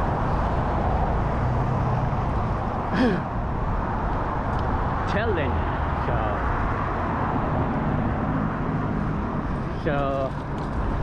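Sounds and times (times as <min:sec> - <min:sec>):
person sighing or grunting: 0:02.9 - 0:03.3.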